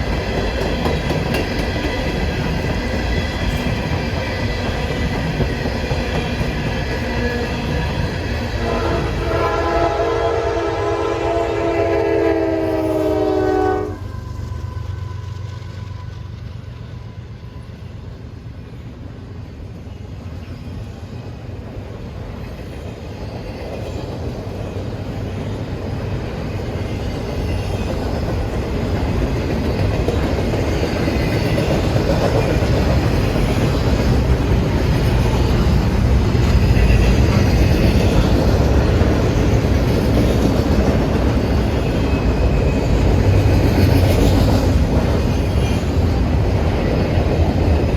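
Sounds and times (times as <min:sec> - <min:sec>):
approaching train rumble: 0:00.0 - 0:47.9
train horn blast: 0:08.6 - 0:15.2.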